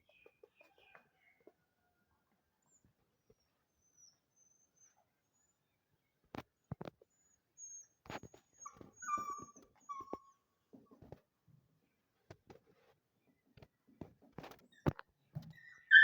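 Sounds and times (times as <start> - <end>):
dog whimpering: 3.4 - 5.5, 7.1 - 10.5, 15.6 - 16.0.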